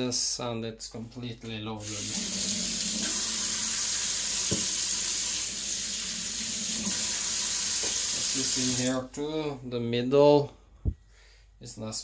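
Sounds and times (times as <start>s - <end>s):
tap water running into sink: 1.8s - 8.9s.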